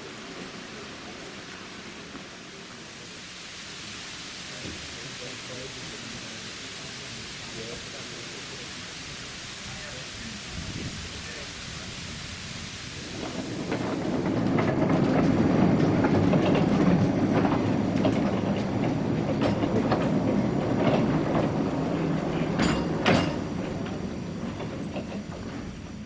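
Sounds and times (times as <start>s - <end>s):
train rumbling past: 0.0s - 26.0s
wheels clicking over rail joints: 12.8s - 26.0s.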